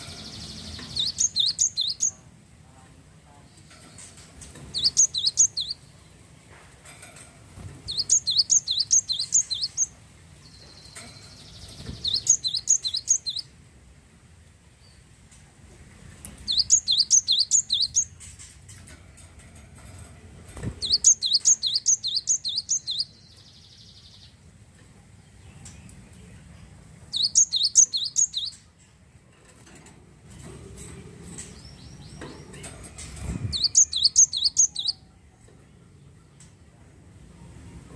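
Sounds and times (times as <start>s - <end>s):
bird singing high sharp notes: 0.0s - 2.1s, 4.8s - 5.8s, 7.9s - 9.9s, 10.8s - 13.5s, 16.5s - 18.1s, 20.8s - 24.3s, 27.1s - 28.6s, 33.5s - 35.0s.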